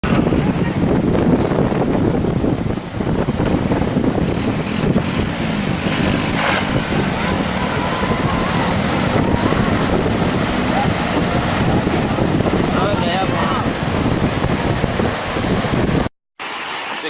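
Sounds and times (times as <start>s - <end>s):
wind buffeting microphone: 0.0s - 16.1s
loud steady rushing noise: 0.0s - 17.0s.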